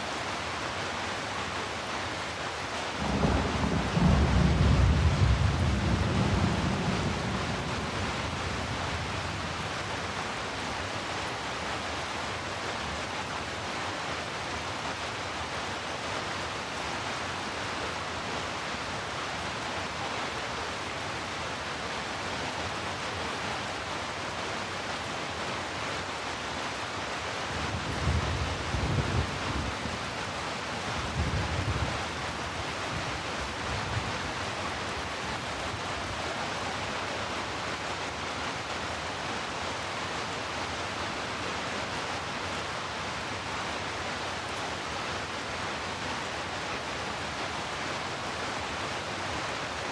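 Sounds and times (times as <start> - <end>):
heavy rain: 0.0 - 49.9
low thunder rumble: 3.0 - 8.6.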